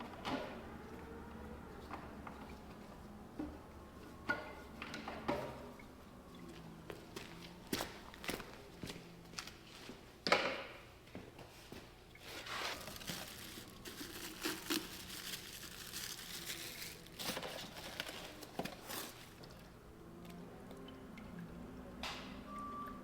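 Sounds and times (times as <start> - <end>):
rustling and crinkling: 11.4 - 19.6.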